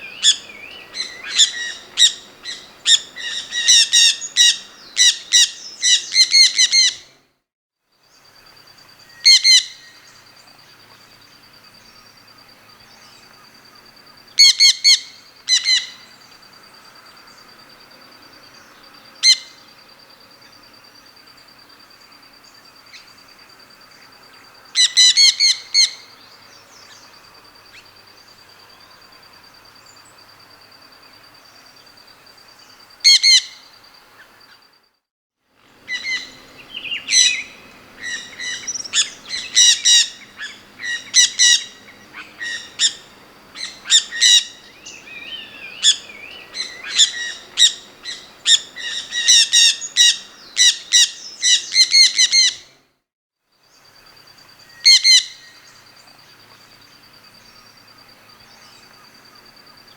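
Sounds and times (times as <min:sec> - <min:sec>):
birds chirping: 0:00.0 - 0:07.0, 0:35.7 - 0:52.6.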